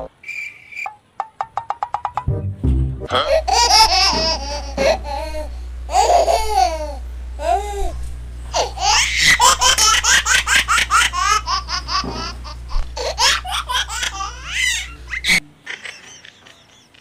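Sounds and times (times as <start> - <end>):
baby laughing and giggling: 3.1 - 17.0.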